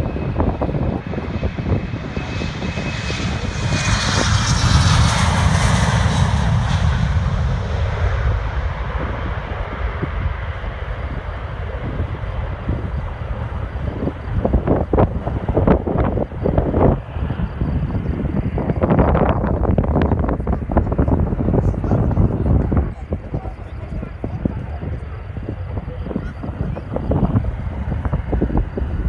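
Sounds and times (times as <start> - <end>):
airliner passing: 0.0 - 29.0.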